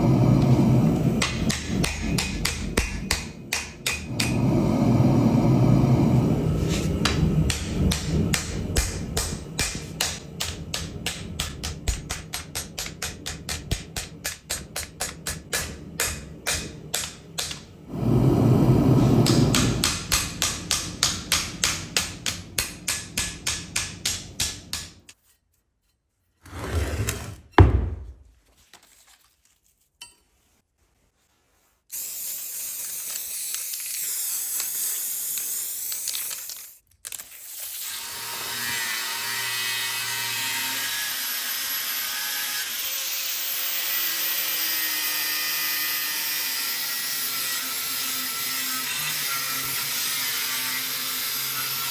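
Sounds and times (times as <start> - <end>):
steady rushing noise: 0.0 - 24.7.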